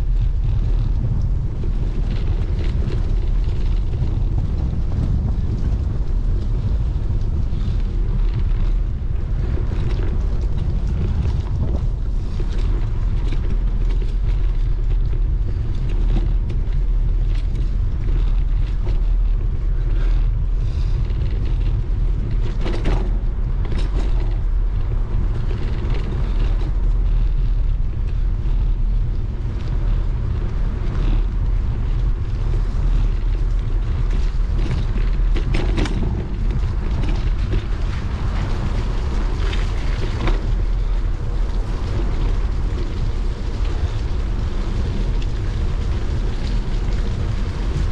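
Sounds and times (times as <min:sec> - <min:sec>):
bicycle rattles: 0:00.0 - 0:47.9
bicycle tyres on wet path: 0:00.0 - 0:47.9
wind buffeting microphone: 0:00.0 - 0:47.9.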